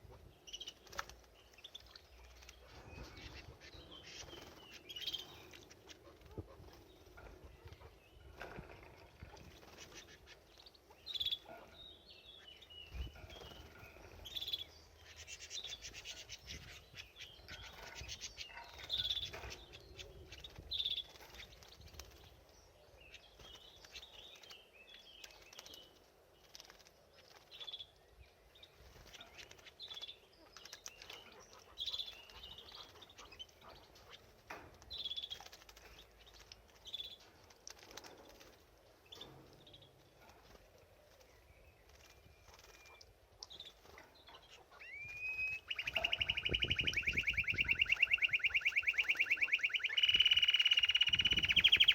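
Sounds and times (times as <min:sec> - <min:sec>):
canary chirping: 0:12.4 - 0:22.1, 0:42.1 - 0:51.9.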